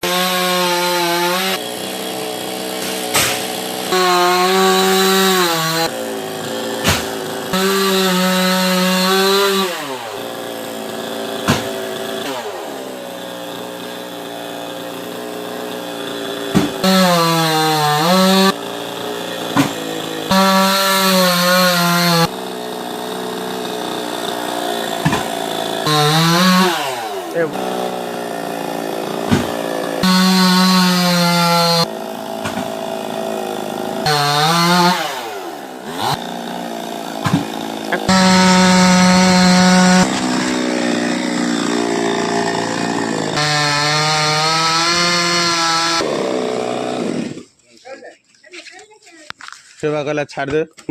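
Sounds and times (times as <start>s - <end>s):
chainsaw revving: 0.0s - 47.6s
sharp knocks: 6.8s - 7.2s, 11.4s - 11.7s, 25.0s - 25.3s, 29.2s - 29.6s, 37.2s - 37.5s.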